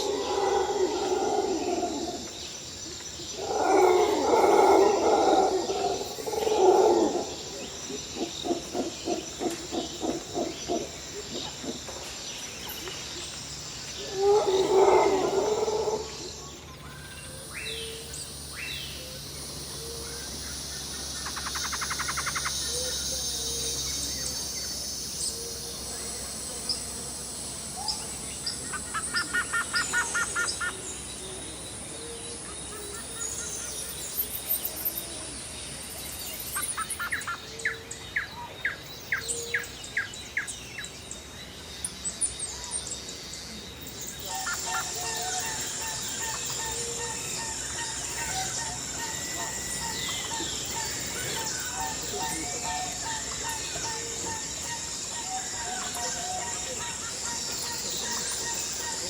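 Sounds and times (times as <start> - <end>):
birds calling: 0.0 - 59.0
high insect drone: 0.0 - 59.0
bird chirps and trills: 13.9 - 59.0.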